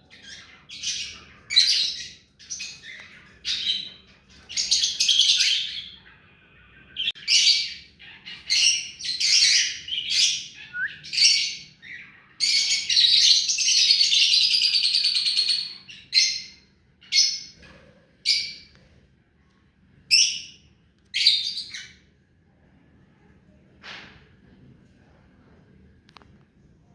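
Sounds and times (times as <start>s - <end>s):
parakeet calling: 0.1s - 17.6s.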